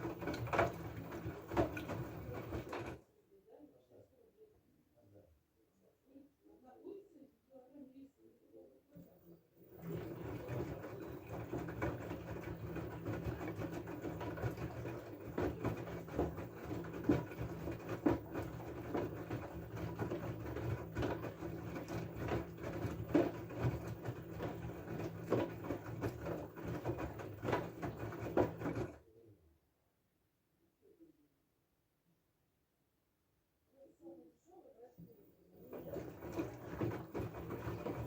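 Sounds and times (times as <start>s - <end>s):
laundry and water tumbling in drum: 0.0s - 3.0s, 9.6s - 29.0s, 35.6s - 38.0s
washing machine motor hum: 0.0s - 3.0s, 8.9s - 29.1s, 34.7s - 38.0s.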